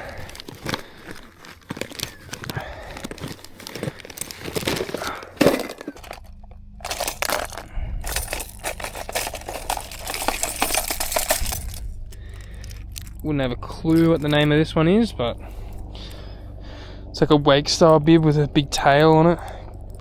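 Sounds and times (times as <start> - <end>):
fishing tackle clicks and clinks: 0.0 - 13.2, 13.9 - 14.6
plastic rustling: 0.0 - 13.2
low steady rumble: 0.0 - 20.0.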